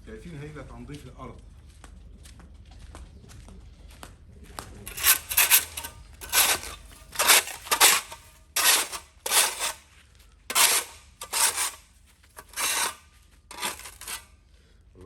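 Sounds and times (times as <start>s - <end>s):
weeding tool scraping ground: 4.8s - 14.5s.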